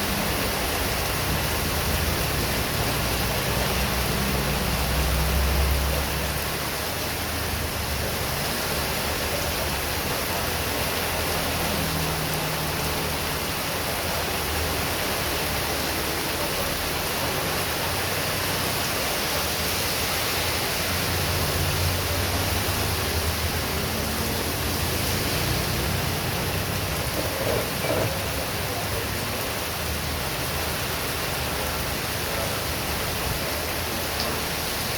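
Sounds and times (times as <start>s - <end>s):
heavy rain in strong wind: 0.0s - 34.9s.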